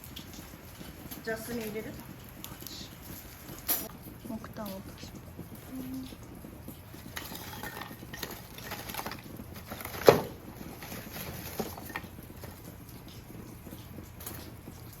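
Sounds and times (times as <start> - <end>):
charcoal dropping into fire pit: 6.7 - 15.0.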